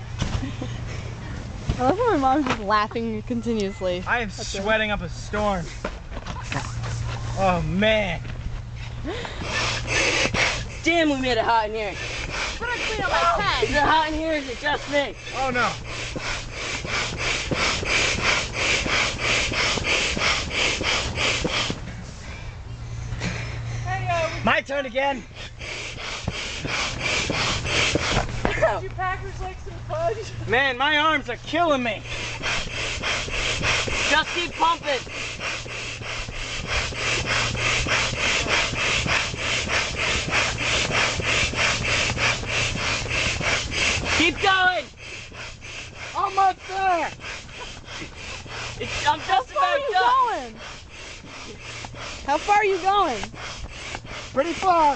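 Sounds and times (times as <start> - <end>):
manual air pump strokes: 0.0 - 54.9
air hissing into mattress: 9.1 - 22.2, 23.2 - 28.8, 30.6 - 54.9.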